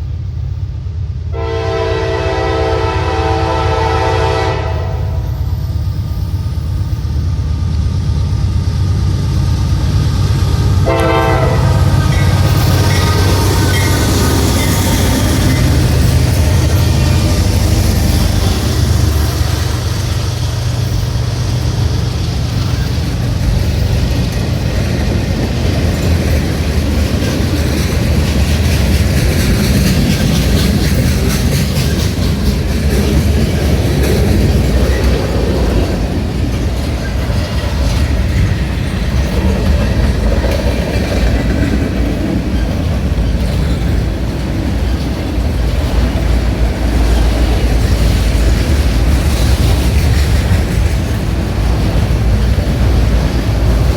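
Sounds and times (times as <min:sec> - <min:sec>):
freight train rumbling past: 0:00.0 - 0:53.9
wheels clicking over rails: 0:11.8 - 0:53.9.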